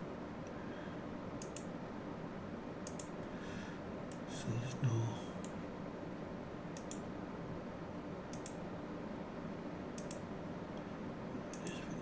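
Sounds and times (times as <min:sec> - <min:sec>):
low room hum: 0:00.0 - 0:12.0
computer mouse button clicks: 0:08.3 - 0:08.6.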